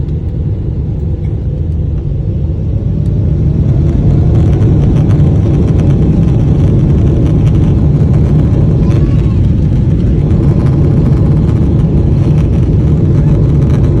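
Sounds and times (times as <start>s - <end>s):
jet engine rumble in cabin: 0.0s - 14.0s.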